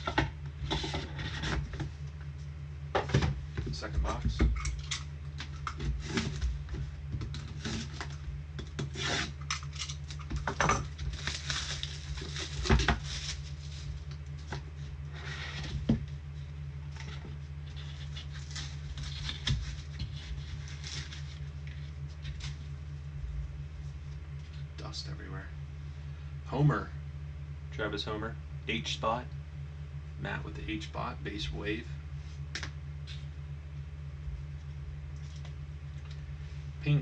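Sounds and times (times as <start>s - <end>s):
steady low hum: 0.0s - 37.0s
cardboard and wrappers rustling: 9.4s - 16.0s, 16.9s - 22.8s.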